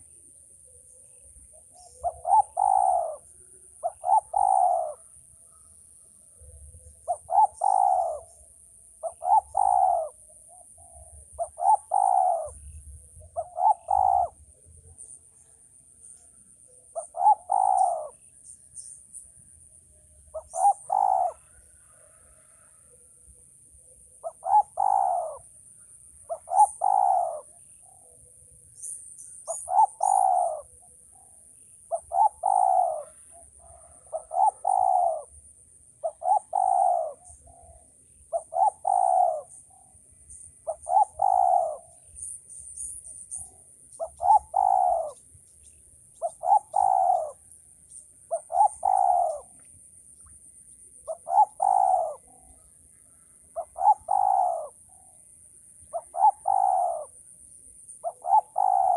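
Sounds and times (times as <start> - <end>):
dove cooing: 1.5 - 14.6, 16.7 - 18.2, 20.3 - 22.7, 24.2 - 25.5, 26.2 - 28.3, 29.4 - 31.3, 31.9 - 35.4, 36.0 - 39.8, 40.6 - 42.1, 43.4 - 45.2, 46.2 - 47.5, 48.3 - 49.6, 51.0 - 52.7, 53.5 - 55.1, 55.9 - 57.2, 58.0 - 58.9.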